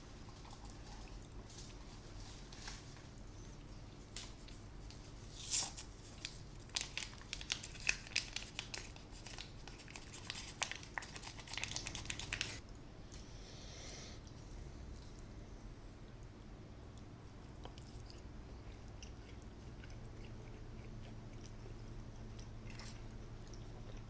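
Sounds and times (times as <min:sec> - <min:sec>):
food packaging crinkling: 0:04.1 - 0:12.6.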